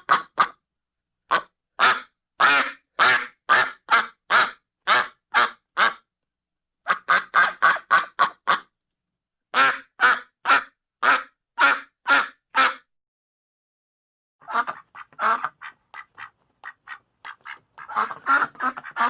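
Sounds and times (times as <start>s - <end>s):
duck quacking: 0.0s - 0.6s, 1.3s - 6.1s, 6.9s - 8.7s, 9.5s - 12.9s, 14.4s - 19.0s.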